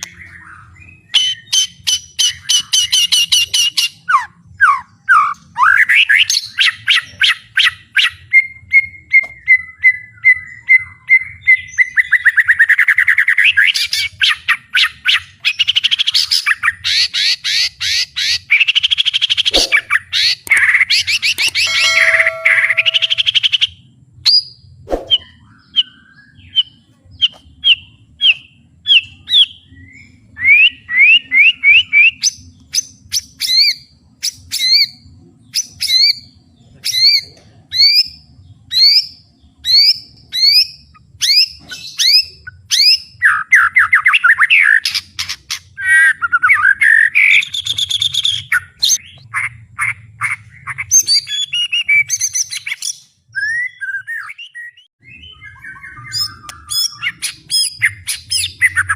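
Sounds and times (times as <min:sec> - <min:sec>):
bird whistling song: 0:00.0 - 0:37.2, 0:37.8 - 0:58.9
bird chattering rattle: 0:19.3 - 0:23.4.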